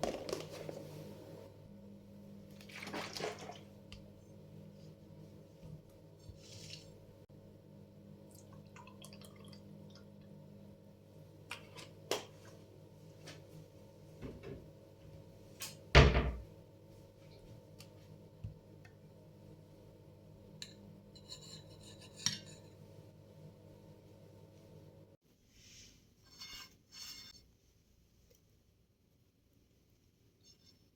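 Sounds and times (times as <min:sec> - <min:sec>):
dishes and utensils clinking: 0:20.6 - 0:22.8.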